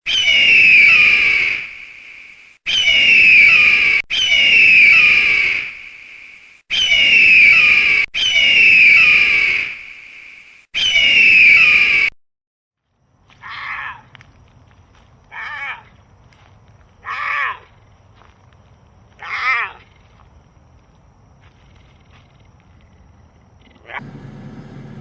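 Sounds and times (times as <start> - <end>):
shrill animal call: 0.0 - 12.1, 13.3 - 14.1, 15.3 - 15.9, 17.0 - 17.8, 19.1 - 20.0.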